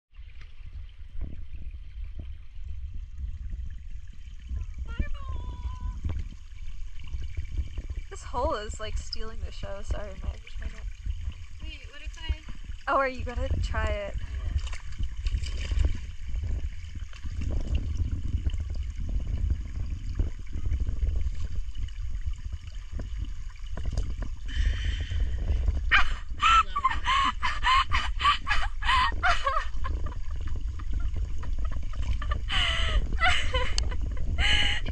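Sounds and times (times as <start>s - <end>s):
water and bubbles rumbling: 0.1s - 34.9s
diver laughing through regulator: 25.9s - 34.9s.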